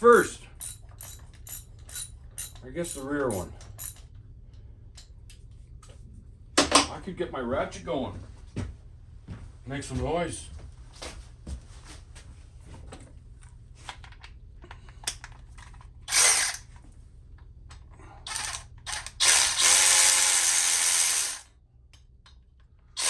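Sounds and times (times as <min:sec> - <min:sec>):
powered ratchet spinning bolts: 0:00.6 - 0:04.0, 0:16.1 - 0:16.6, 0:18.3 - 0:21.5.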